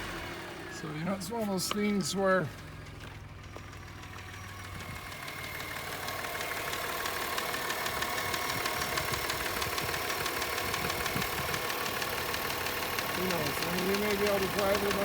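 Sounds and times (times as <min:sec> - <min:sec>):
car engine idling: 0:00.0 - 0:15.0
fast clicking from engine: 0:01.4 - 0:15.0.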